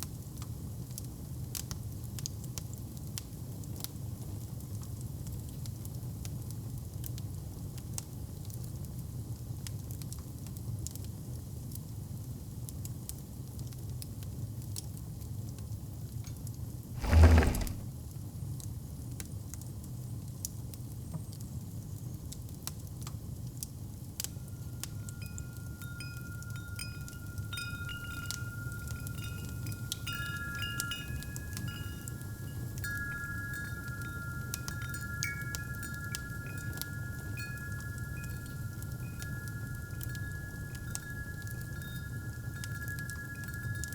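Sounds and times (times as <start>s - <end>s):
wind chimes ringing: 17.0s - 17.8s, 24.5s - 43.9s.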